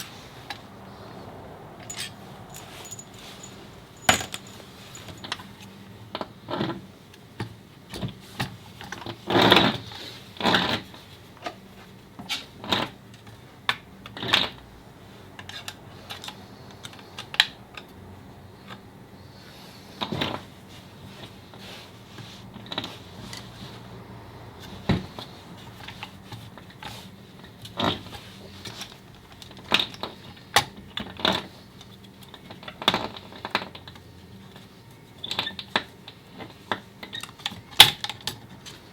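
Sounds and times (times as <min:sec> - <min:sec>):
metal parts clattering: 0:01.8 - 0:05.4
metal parts clicking and clinking: 0:01.8 - 0:05.5.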